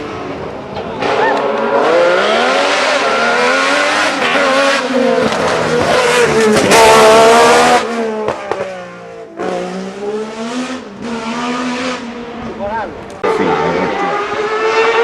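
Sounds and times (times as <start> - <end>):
racing car engine at high revs: 0.0 - 15.0.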